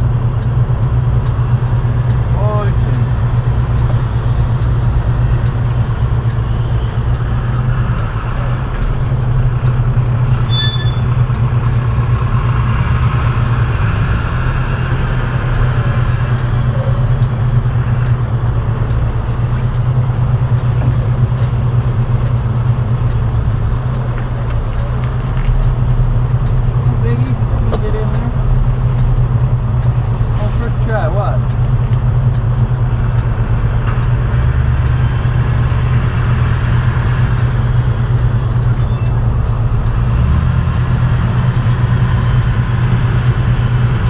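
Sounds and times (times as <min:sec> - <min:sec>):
diesel truck engine running: 0:00.0 - 0:44.0.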